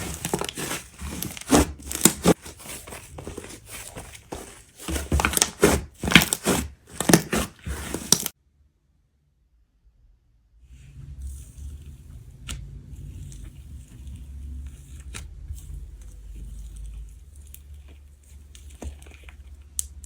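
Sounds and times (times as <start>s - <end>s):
slime crackling and popping: 5.2s - 8.3s.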